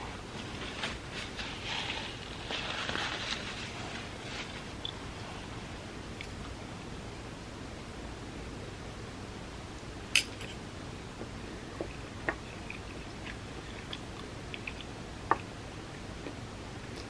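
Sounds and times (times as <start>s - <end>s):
steady low hiss: 0.0s - 17.0s
soft chewing: 11.2s - 15.5s.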